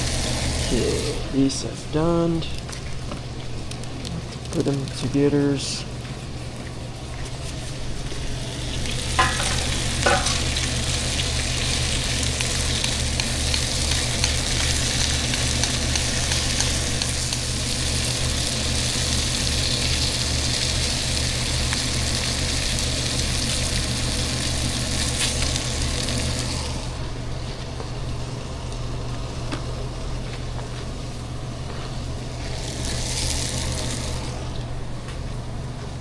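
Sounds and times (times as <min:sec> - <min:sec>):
meat sizzling in a frying pan: 0:08.0 - 0:26.9, 0:32.4 - 0:34.3.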